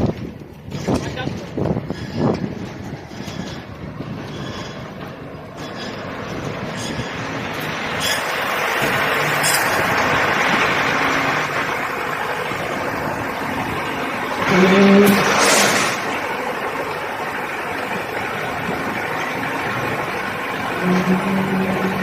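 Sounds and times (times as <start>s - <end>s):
concrete pump running: 0.0s - 22.0s.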